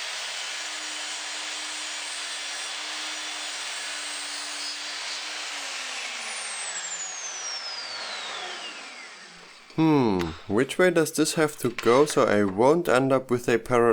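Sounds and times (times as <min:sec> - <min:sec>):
power tool whirring: 0:00.0 - 0:10.7.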